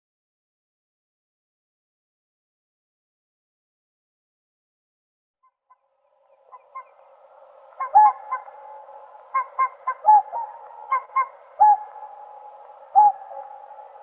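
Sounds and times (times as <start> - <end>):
flock of swans calling: 6.3 - 14.0.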